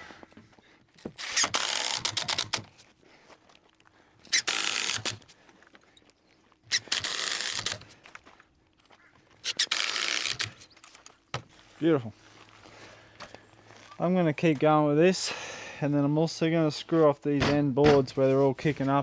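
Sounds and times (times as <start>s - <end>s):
power drill boring into wood: 1.0s - 2.7s, 4.2s - 5.3s, 6.7s - 7.9s, 9.4s - 10.9s.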